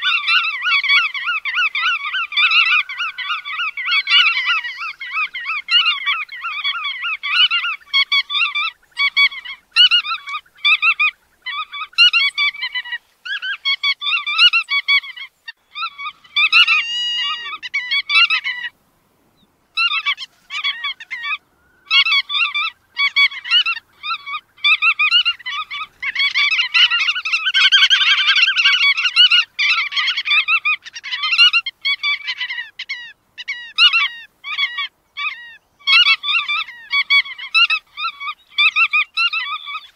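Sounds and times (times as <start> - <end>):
godwits chattering calls: 0.0 - 18.7, 19.8 - 39.9.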